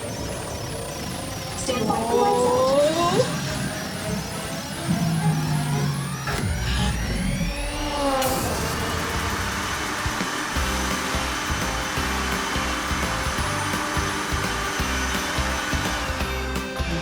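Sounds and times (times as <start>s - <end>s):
wind machine blowing air: 7.2s - 16.7s.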